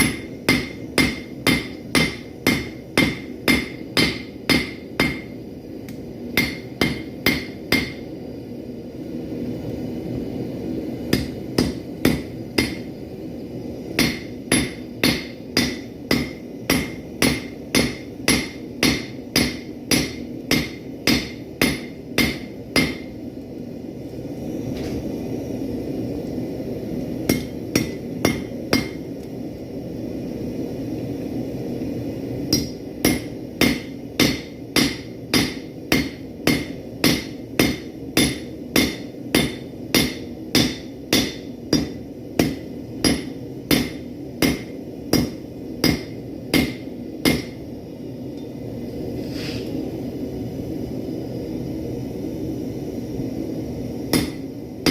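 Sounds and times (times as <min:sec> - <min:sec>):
hammer striking steel on anvil: 0:00.0 - 0:08.1, 0:11.1 - 0:12.9, 0:14.0 - 0:23.1, 0:27.3 - 0:29.1, 0:32.5 - 0:47.6, 0:54.1 - 0:54.9.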